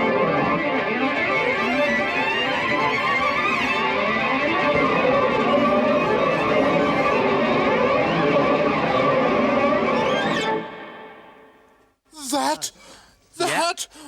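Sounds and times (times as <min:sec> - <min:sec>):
experimental violin music: 0:00.0 - 0:11.2.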